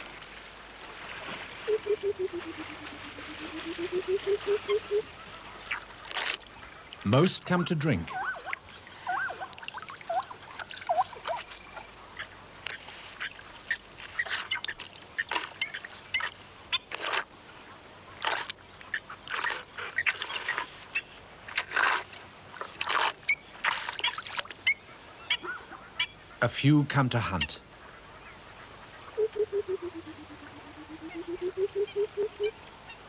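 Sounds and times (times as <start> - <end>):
birds chirping: 24.6 - 33.0.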